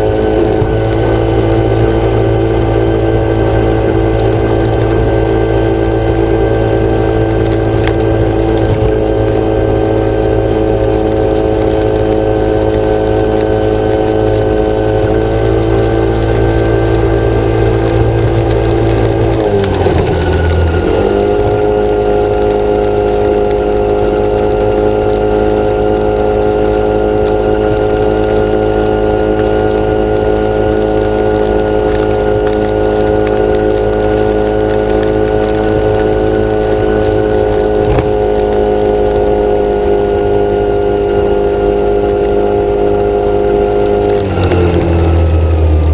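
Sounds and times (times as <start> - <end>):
motor humming: 14.6 - 24.9.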